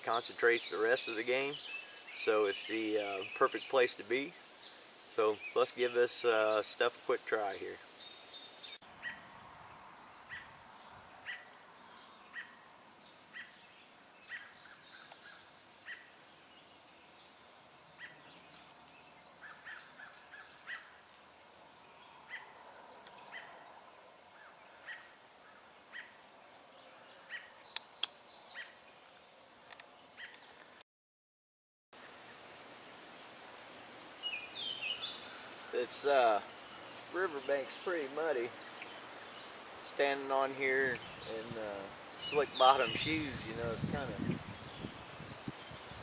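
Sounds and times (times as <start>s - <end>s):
bird chirping: 0.0s - 30.7s, 34.2s - 44.9s
faint outdoor background hiss: 0.0s - 30.8s, 32.0s - 46.0s.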